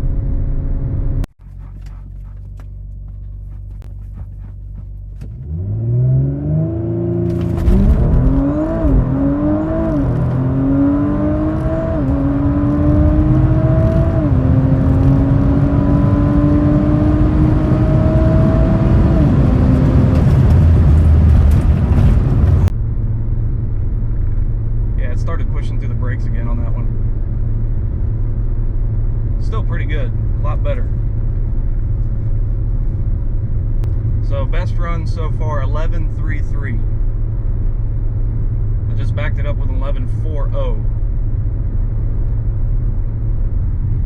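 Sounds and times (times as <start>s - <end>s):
gearbox upshifts: 1.4s - 6.2s
car engine revving and accelerating: 3.2s - 22.7s.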